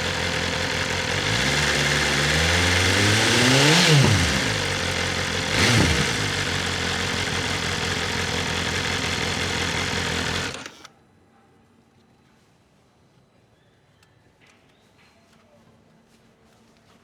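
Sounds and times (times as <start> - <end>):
motorcycle engine idling and revving: 0.0 - 10.9.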